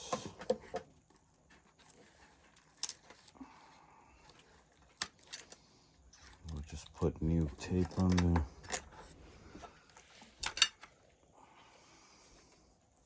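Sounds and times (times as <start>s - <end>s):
small parts clicking: 2.2s - 3.4s, 4.2s - 7.0s, 9.9s - 11.0s.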